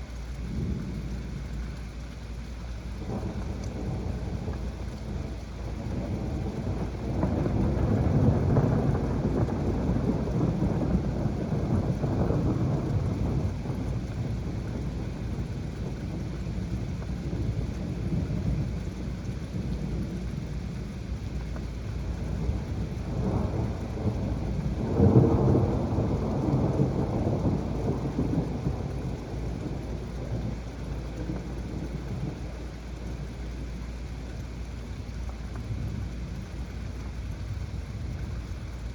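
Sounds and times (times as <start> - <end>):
heavy rain: 0.0 - 38.9
thunder rumbling: 0.4 - 38.9
thunder clap: 3.0 - 20.3, 21.9 - 32.6.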